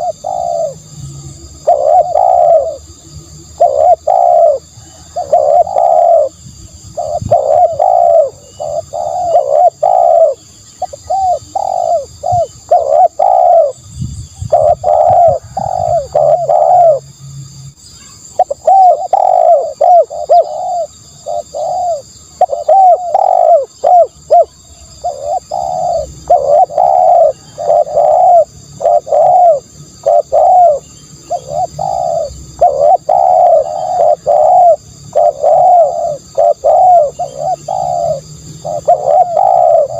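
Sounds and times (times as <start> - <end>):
dove cooing: 0.0 - 17.0, 18.3 - 39.9.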